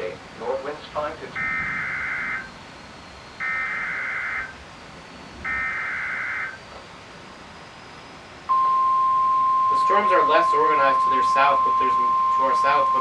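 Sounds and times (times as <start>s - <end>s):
warbling data tones: 0.0s - 13.0s
steady alert tone: 8.5s - 13.0s.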